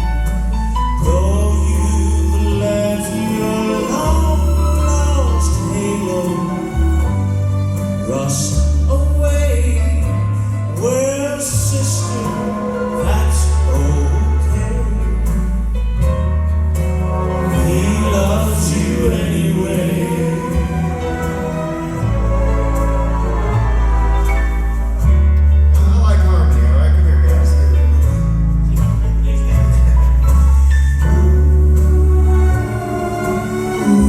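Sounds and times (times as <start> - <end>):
instrumental accompaniment: 0.0 - 34.0
male quartet singing in harmony: 1.0 - 15.7, 16.8 - 25.1, 31.0 - 34.0.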